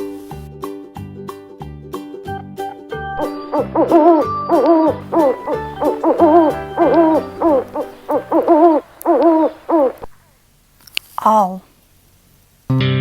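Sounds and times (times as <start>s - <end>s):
faint background music: 0.0s - 10.0s
owl hooting: 3.2s - 10.4s.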